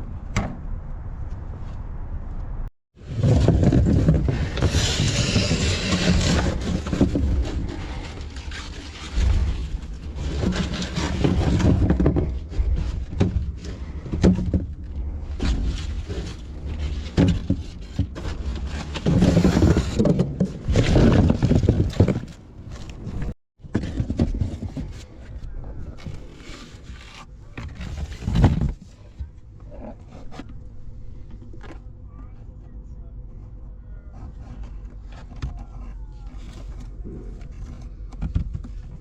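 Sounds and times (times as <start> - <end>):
steady low rumble: 0.0 - 19.0, 28.8 - 35.1
items scraping and knocking: 3.0 - 32.0, 34.1 - 39.0.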